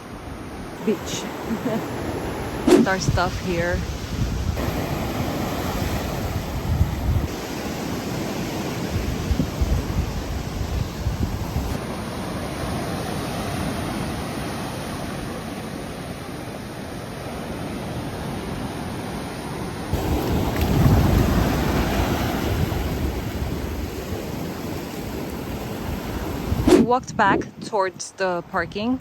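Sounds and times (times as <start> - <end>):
ocean surf breaking: 0.0 - 27.9
wind buffeting microphone: 1.6 - 7.4, 8.6 - 11.8, 19.9 - 27.8.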